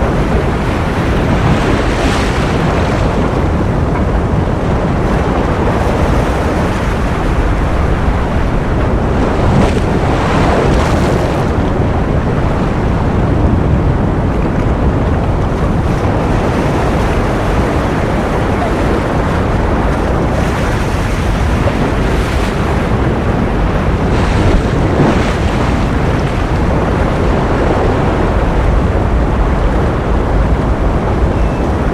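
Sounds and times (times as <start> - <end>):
ocean waves breaking: 0.0 - 31.9.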